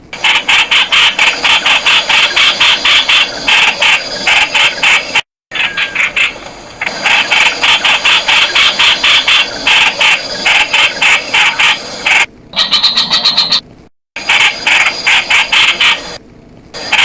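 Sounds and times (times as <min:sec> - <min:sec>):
bird calling with harsh notes: 0:12.6 - 0:13.7.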